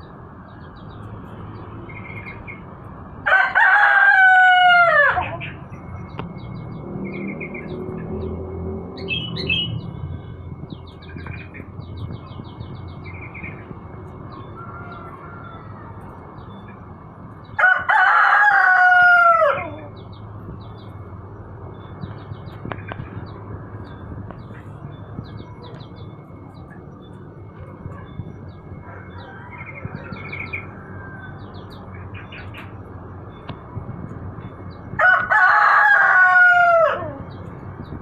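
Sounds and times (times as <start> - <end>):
small birds chirping: 0.0 - 3.0, 5.2 - 17.6, 19.6 - 35.0
rooster crowing: 3.2 - 5.5, 14.3 - 16.3, 17.6 - 20.0, 28.7 - 31.8, 35.0 - 37.4.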